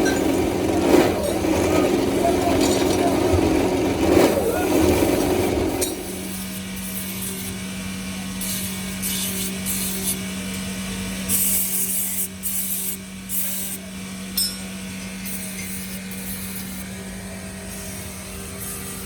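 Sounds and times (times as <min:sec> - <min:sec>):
machine hum: 0:00.0 - 0:06.9
tool scraping strokes: 0:00.0 - 0:07.2.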